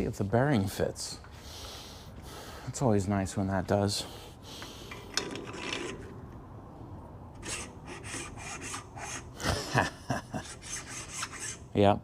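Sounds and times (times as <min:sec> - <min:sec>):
metal scraping and rubbing: 0:04.9 - 0:06.2, 0:07.4 - 0:09.3, 0:10.4 - 0:11.7.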